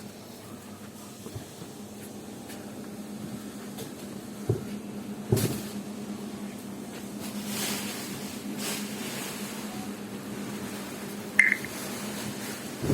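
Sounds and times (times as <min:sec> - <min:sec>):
machinery humming: 0:09.3 - 0:12.8.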